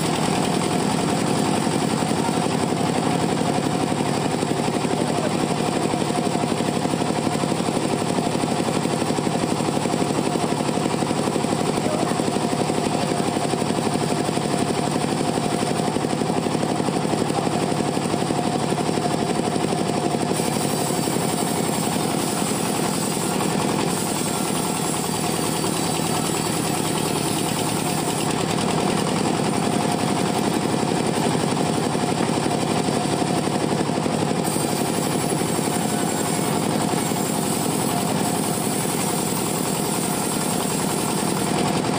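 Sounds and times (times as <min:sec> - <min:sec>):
chainsaw cutting wood: 0:00.0 - 0:04.6, 0:19.9 - 0:41.9.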